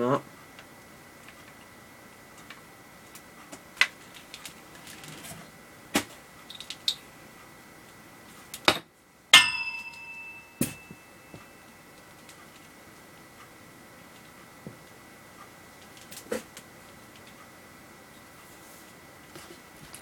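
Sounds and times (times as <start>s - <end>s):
sharp ringing clank: 9.4s - 11.8s
faint high whine: 9.4s - 15.8s.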